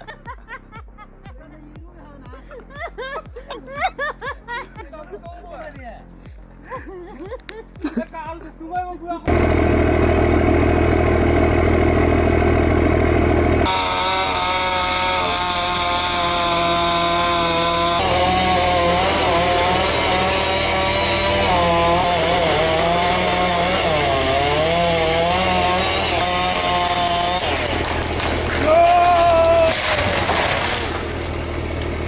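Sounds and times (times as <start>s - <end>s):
low engine drone: 9.3s - 25.4s, 27.2s - 32.0s
chainsaw cutting wood: 9.3s - 32.0s.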